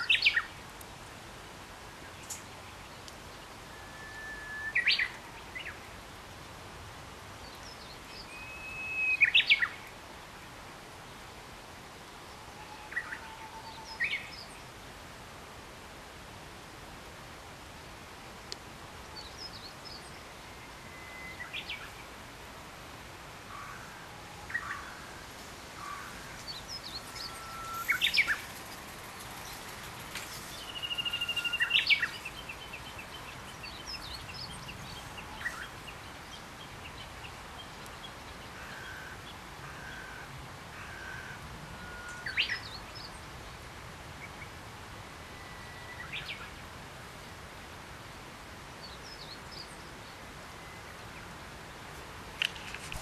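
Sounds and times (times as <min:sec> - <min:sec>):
steady background hiss: 0:00.0 - 0:53.0
songbirds chirping and whistling: 0:02.1 - 0:05.9, 0:07.4 - 0:09.9, 0:19.0 - 0:22.1, 0:24.2 - 0:39.4, 0:41.8 - 0:43.3.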